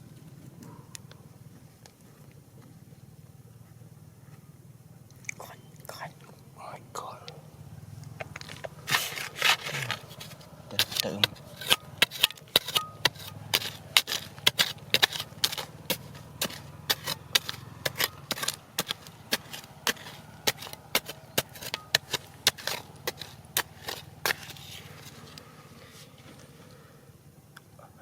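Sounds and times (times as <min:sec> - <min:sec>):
hand tool striking rock: 0:08.4 - 0:25.4.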